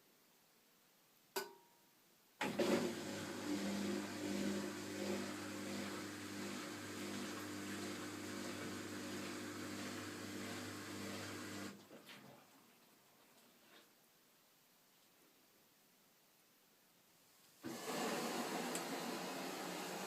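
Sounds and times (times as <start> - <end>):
washing machine motor humming: 2.4 - 11.8, 17.6 - 20.0.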